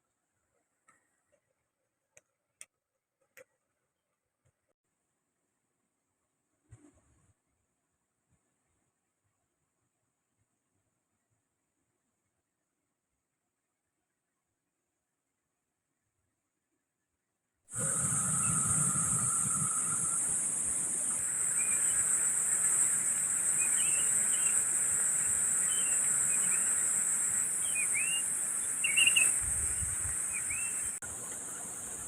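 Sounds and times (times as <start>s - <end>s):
insects droning: 17.7s - 32.0s
bird chirps: 21.1s - 31.0s.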